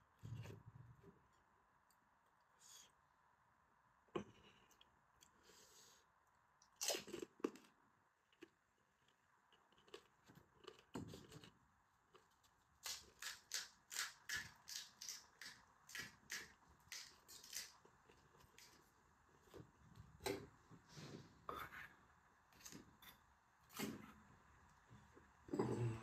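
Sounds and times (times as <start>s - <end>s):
crunchy chewing: 6.6s - 18.8s.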